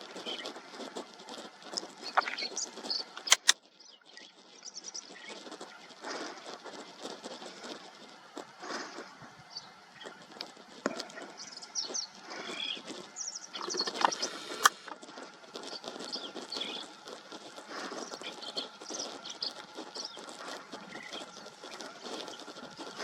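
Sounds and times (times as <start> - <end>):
rustling in dry leaves: 0.0 - 23.0
sharp click: 3.2 - 3.6.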